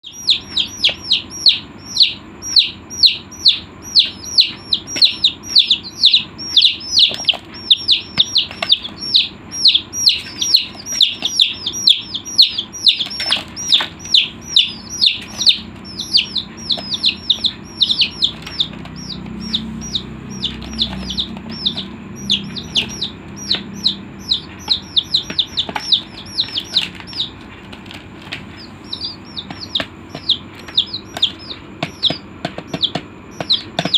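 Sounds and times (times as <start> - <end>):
chicks peeping: 0.0 - 33.9.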